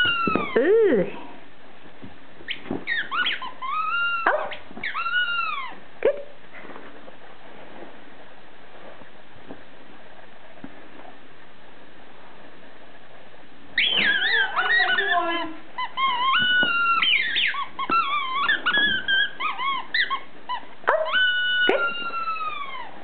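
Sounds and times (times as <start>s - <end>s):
squeaky dog toy squeaking: 0.0s - 0.8s, 2.5s - 6.2s, 13.8s - 22.9s.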